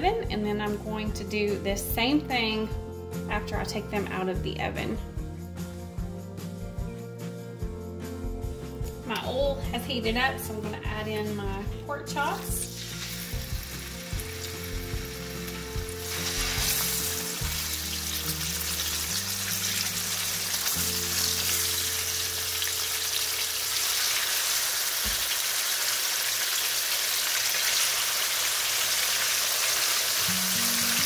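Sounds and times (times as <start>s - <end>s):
pork chops sizzling in oil: 12.3s - 31.0s.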